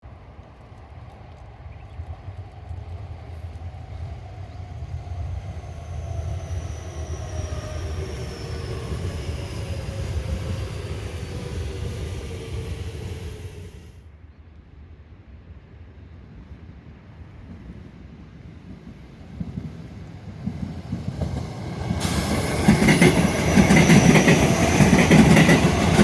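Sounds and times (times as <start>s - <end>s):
train wheels rumbling on rail: 0.1s - 13.9s, 17.0s - 26.0s
traction motor whine: 5.1s - 13.9s.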